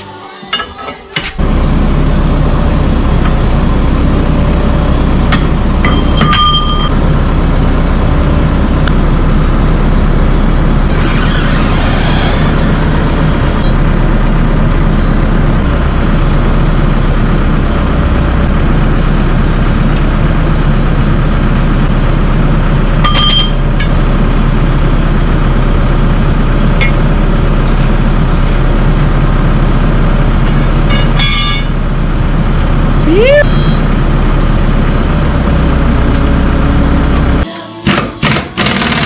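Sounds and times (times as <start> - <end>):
diesel engine running: 1.2 - 39.0
sharp metallic clanks: 30.5 - 31.8.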